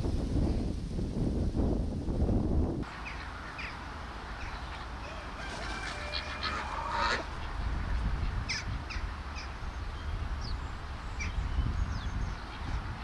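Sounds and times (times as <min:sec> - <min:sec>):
birds chirping: 0:02.8 - 0:13.0.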